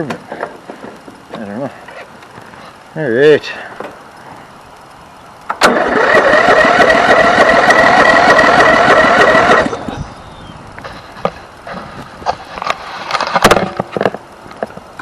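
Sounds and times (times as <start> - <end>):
electric starter cranking engine: 5.5 - 10.0.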